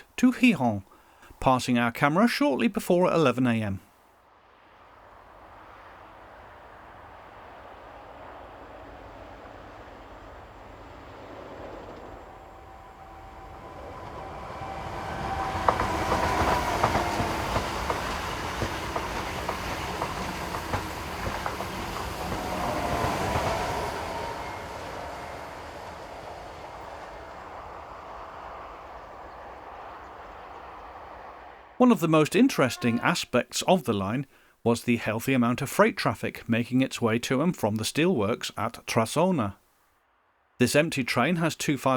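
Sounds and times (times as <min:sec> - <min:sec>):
passenger train passing: 0:04.3 - 0:34.2
wheels clicking over rail joints: 0:10.2 - 0:24.3.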